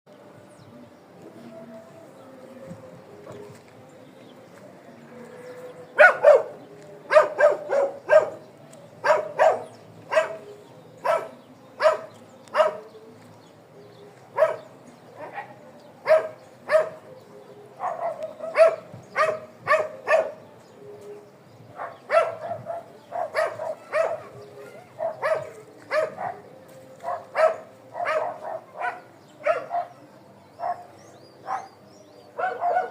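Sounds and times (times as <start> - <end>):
dog barking: 6.0 - 12.9, 14.4 - 17.1, 17.8 - 20.4, 21.8 - 31.8, 32.4 - 32.9.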